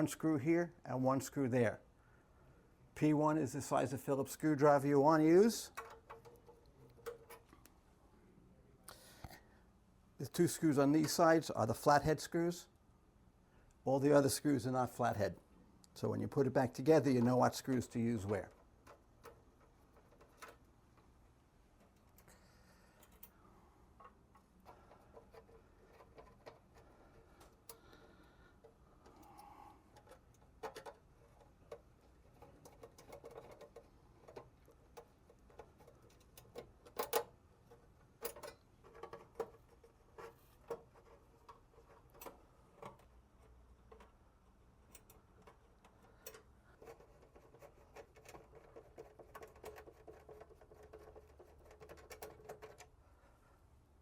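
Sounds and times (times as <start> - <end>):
screwdriver clicking and scraping: 5.7 - 7.6, 17.2 - 20.7, 24.0 - 28.0, 28.6 - 44.2, 44.8 - 53.0.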